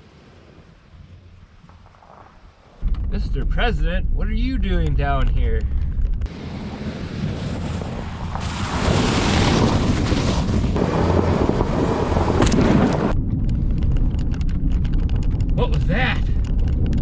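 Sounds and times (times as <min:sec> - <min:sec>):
loud rushing noise: 0:02.8 - 0:13.1.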